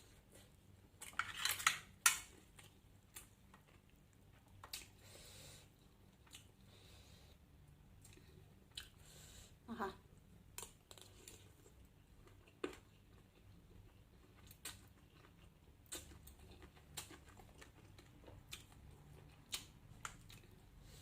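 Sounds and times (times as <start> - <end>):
person chewing: 2.2 - 5.1, 5.8 - 6.8, 8.0 - 9.0, 10.5 - 21.0.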